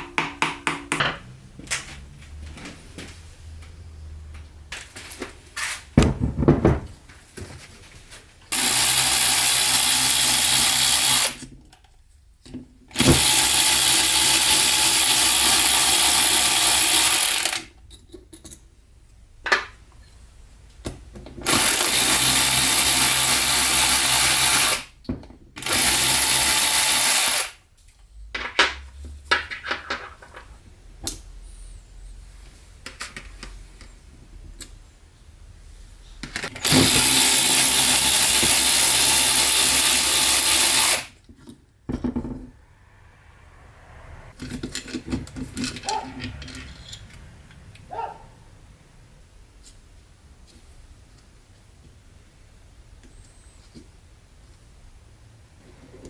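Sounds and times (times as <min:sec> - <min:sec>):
handling knocks: 0:06.0 - 0:07.0
power tool running: 0:08.5 - 0:11.5, 0:13.0 - 0:17.6, 0:21.4 - 0:24.9, 0:25.6 - 0:27.5, 0:36.6 - 0:41.2.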